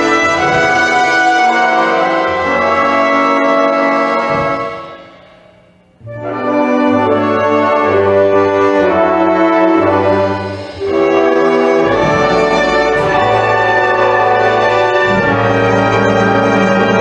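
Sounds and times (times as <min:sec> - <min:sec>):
brass section playing chords: 0:00.0 - 0:05.2, 0:06.0 - 0:17.0
low bass line: 0:11.8 - 0:16.6.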